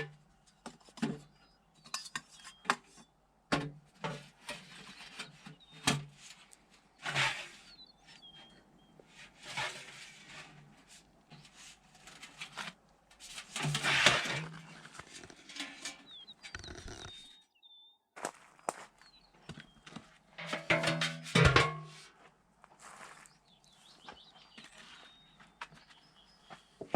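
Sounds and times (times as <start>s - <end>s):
birds chirping: 0.2s - 3.3s, 4.6s - 13.2s, 14.3s - 20.4s, 23.0s - 26.9s
scraping and rustling: 4.0s - 17.3s.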